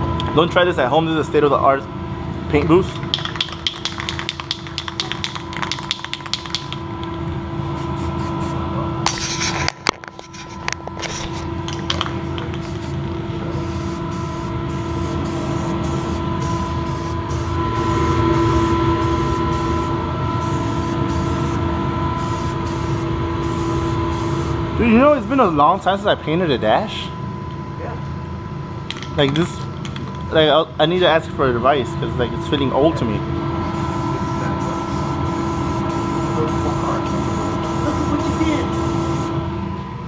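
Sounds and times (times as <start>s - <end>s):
steady hum: 0.0s - 40.0s
quick clicks: 3.0s - 6.8s
spray can hissing: 7.8s - 9.4s, 12.6s - 21.6s, 22.2s - 24.6s, 33.8s - 39.3s.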